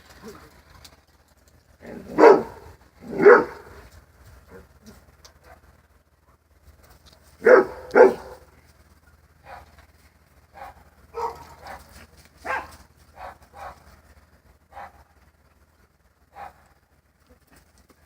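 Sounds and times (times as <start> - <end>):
dog barking: 2.0 - 3.8, 5.4 - 5.7, 7.4 - 8.5, 9.4 - 9.7, 10.5 - 13.8, 14.7 - 15.1, 16.3 - 16.6.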